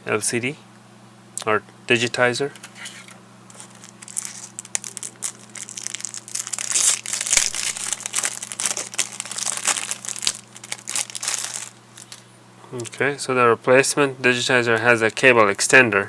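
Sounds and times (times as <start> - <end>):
plastic packaging crinkling: 2.6 - 12.3.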